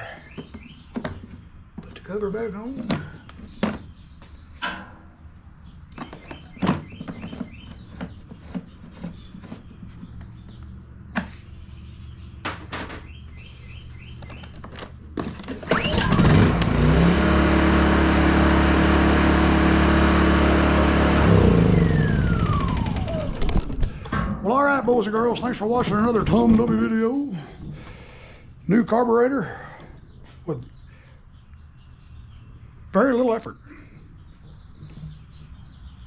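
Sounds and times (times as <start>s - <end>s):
birds chirping: 0.0s - 36.0s
generator engine starting and running: 13.1s - 28.4s.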